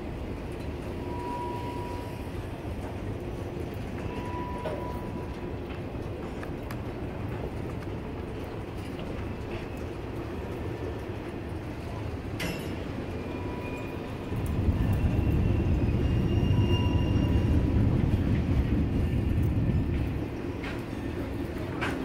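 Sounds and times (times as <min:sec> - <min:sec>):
freight train rumbling on rails: 0:00.0 - 0:22.0
faint wheel squeals: 0:01.0 - 0:02.4, 0:04.0 - 0:05.2, 0:13.1 - 0:17.6.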